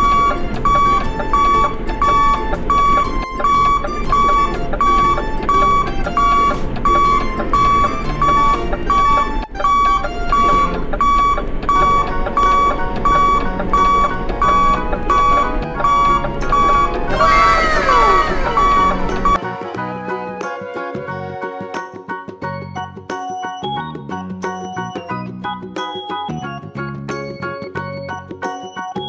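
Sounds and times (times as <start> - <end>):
electronic beeps: 0.0 - 19.4
simple electronic tune: 0.0 - 19.4.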